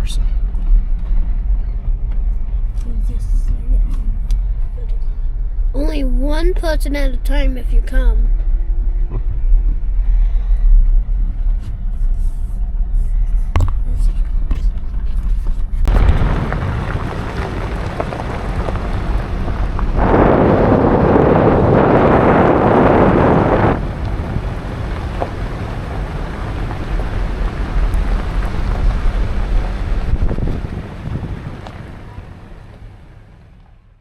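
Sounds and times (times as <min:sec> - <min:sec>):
wind rushing over microphone: 0:08.0 - 0:33.6.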